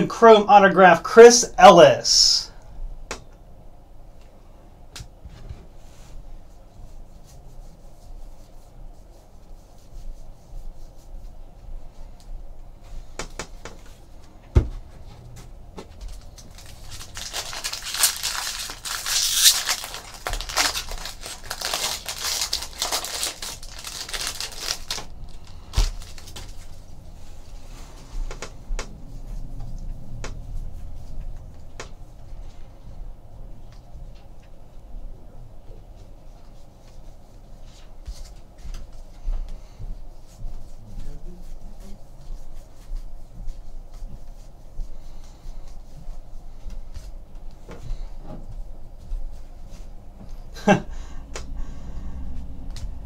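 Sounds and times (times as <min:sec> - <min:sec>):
foil wrapper tearing and crinkling: 0:16.0 - 0:26.7.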